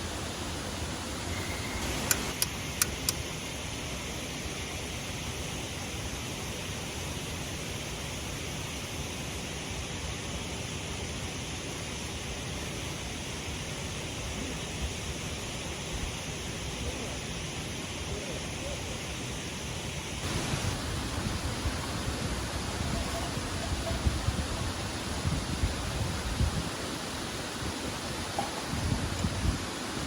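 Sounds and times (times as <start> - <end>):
waterfall rushing: 20.2 - 30.0.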